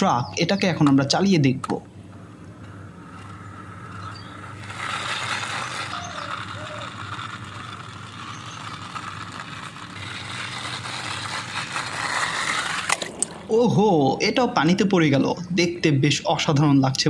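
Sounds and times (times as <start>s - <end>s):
toy truck wheels rolling and rattling: 2.2s - 13.6s.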